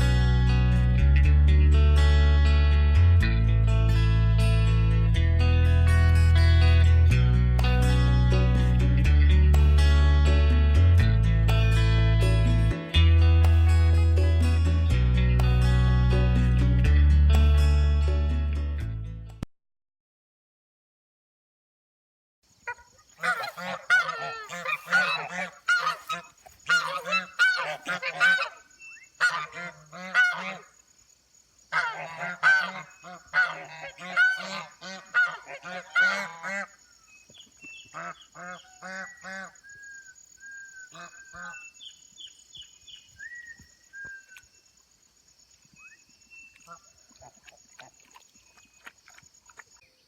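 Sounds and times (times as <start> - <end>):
geese honking: 22.7 - 30.7, 31.7 - 36.8, 37.9 - 39.6, 40.8 - 41.7.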